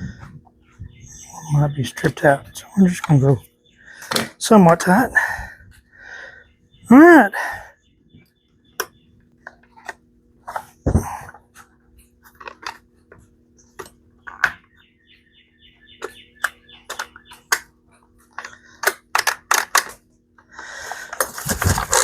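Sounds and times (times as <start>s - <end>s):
plastic parts clicking and knocking: 4.0s - 4.4s, 12.3s - 14.7s, 16.0s - 20.1s
recoil starter cord pulled: 20.9s - 22.0s.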